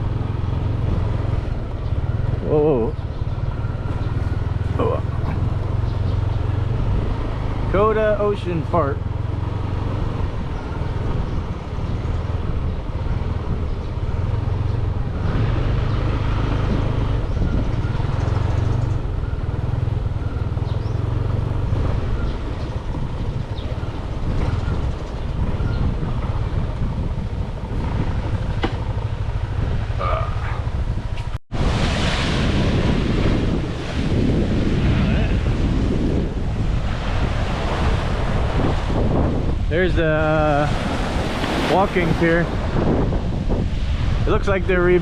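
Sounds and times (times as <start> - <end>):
motorbike engine running: 0.0 - 7.9, 8.9 - 31.4
road noise: 0.0 - 45.0.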